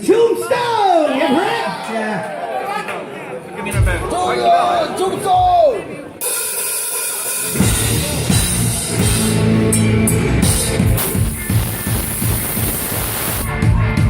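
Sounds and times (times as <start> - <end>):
heavy drums: 5.4 - 14.0
live metal band playing: 6.2 - 14.0.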